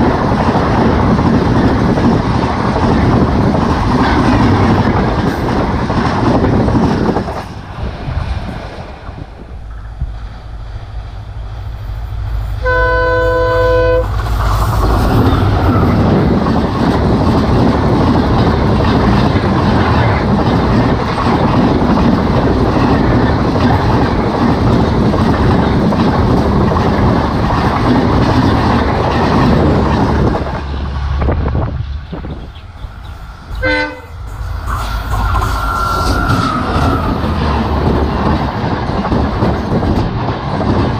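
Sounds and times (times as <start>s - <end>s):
train rushing past: 0.0s - 40.9s
train horn blast: 12.6s - 14.1s, 33.6s - 34.2s.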